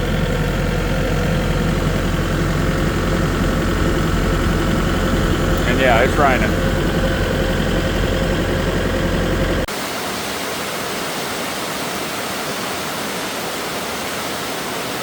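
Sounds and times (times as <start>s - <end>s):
tractor engine idling: 0.0s - 9.7s.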